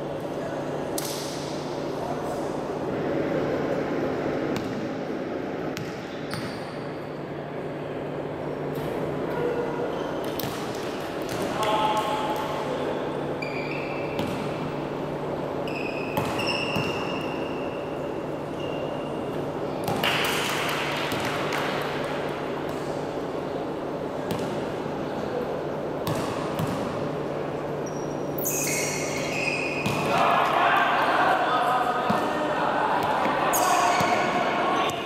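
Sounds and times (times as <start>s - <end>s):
crowd in indoor hall: 0.0s - 35.0s
sneakers squeaking on floor: 5.8s - 6.8s, 13.4s - 14.5s, 15.6s - 17.8s, 18.4s - 19.9s, 27.8s - 30.1s, 33.5s - 35.0s
basketball bouncing: 16.2s - 17.0s, 26.0s - 26.9s.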